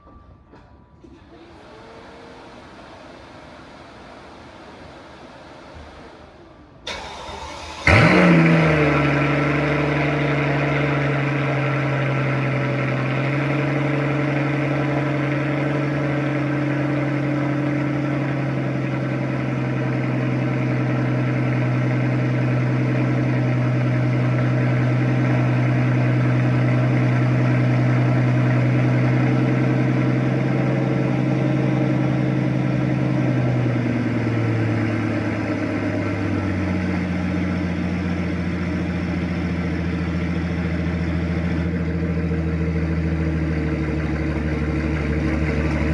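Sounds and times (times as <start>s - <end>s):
car engine revving and idling: 1.0s - 45.9s
starter motor cranking: 1.1s - 13.9s, 43.6s - 45.9s.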